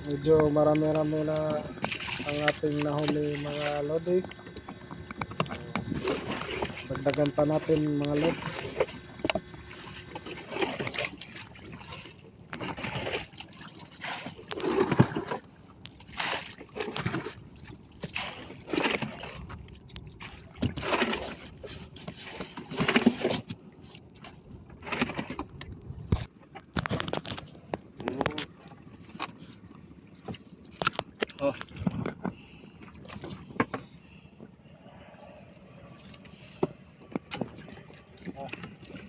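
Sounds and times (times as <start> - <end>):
water splashing against boat: 0.0 - 39.0.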